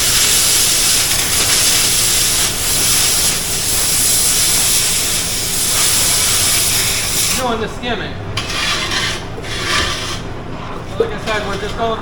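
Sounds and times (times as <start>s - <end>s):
cutting torch hissing: 0.0s - 7.6s.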